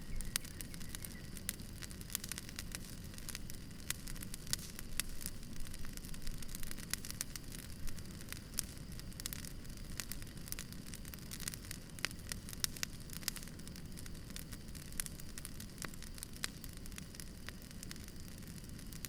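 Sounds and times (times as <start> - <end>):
low steady rumble: 0.0 - 10.4
campfire crackling and popping: 0.0 - 19.0.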